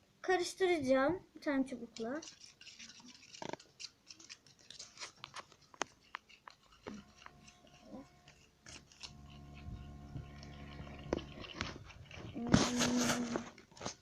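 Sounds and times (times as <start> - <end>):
stick stirring shampoo: 1.8 - 14.0
steady low hum: 6.8 - 13.5.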